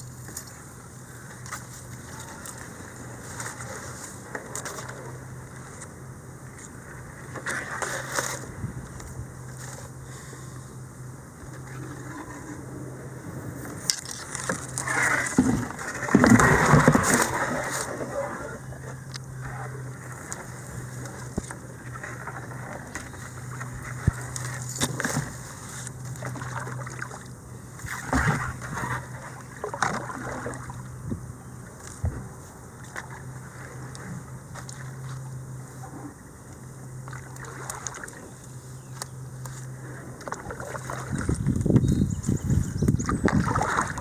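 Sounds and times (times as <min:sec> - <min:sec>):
steady low hum: 0:00.0 - 0:44.0
paddle splashing in water: 0:06.5 - 0:08.6, 0:11.4 - 0:42.3, 0:42.9 - 0:44.0.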